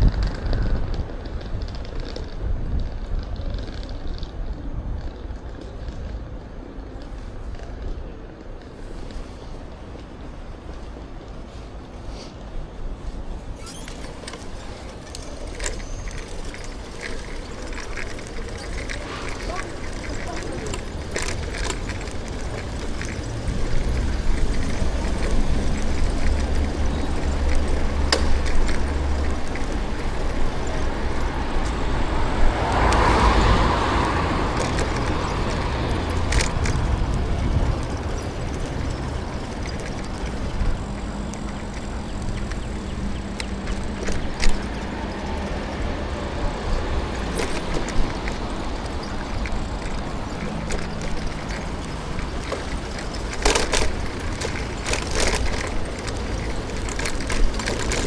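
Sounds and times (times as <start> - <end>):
street traffic rumble: 0.0 - 58.0
vehicle passing: 13.1 - 58.0.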